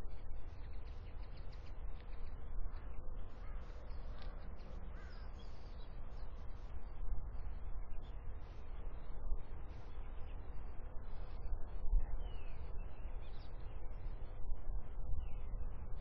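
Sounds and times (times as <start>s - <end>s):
faint bird calls: 0.0s - 11.4s.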